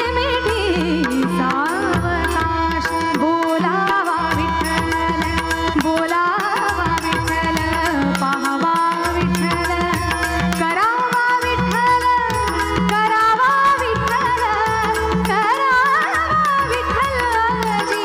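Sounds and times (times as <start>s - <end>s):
tabla rhythm: 0.0s - 18.0s.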